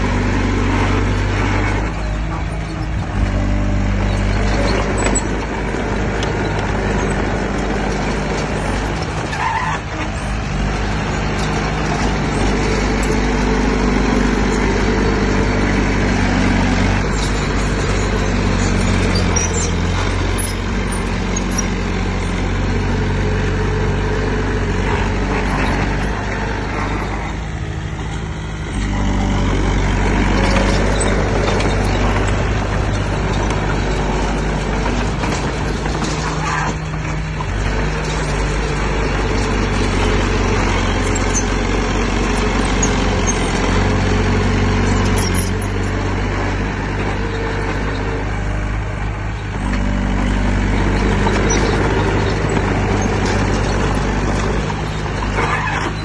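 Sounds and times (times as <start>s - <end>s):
heavy diesel engine under load: 0.0s - 56.0s.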